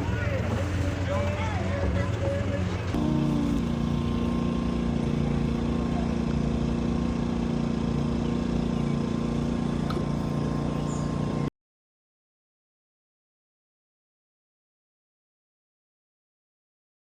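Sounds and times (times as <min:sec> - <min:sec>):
vehicle engine idling: 0:00.0 - 0:11.5.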